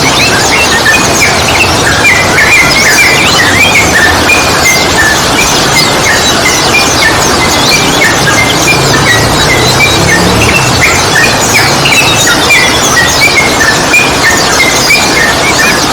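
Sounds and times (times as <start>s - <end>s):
loud rushing noise: 1.3s - 13.2s.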